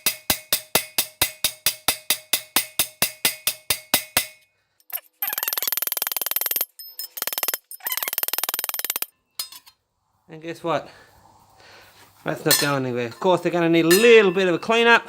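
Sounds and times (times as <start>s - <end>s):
loud rapid rattle: 5.2s - 9.1s
small hammer tapping rivets: 5.2s - 9.1s.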